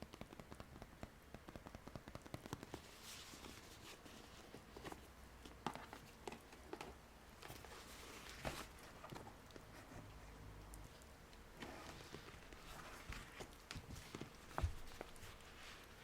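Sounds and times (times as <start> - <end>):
soft taps and clicks: 0.0 - 3.5.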